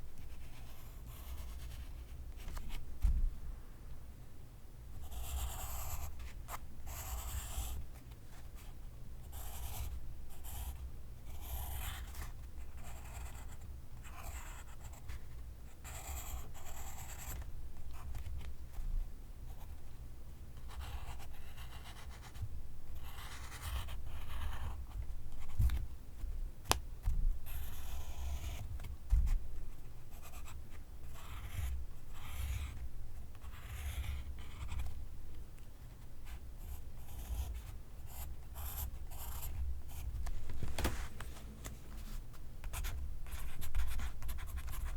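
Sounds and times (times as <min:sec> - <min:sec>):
pencil writing on paper: 0:05.0 - 0:06.1, 0:06.9 - 0:07.8, 0:09.3 - 0:12.2, 0:23.0 - 0:24.8, 0:27.5 - 0:28.6, 0:31.2 - 0:32.8, 0:33.4 - 0:34.8, 0:36.6 - 0:40.1.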